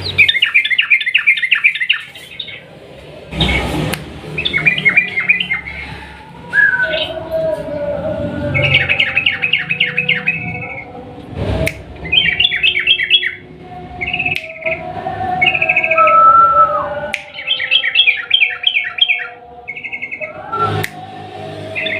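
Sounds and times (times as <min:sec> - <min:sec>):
bird singing chattering notes: 0:00.0 - 0:02.6, 0:12.0 - 0:13.4
bird whistle: 0:00.1 - 0:02.1, 0:12.0 - 0:13.4, 0:15.4 - 0:20.8.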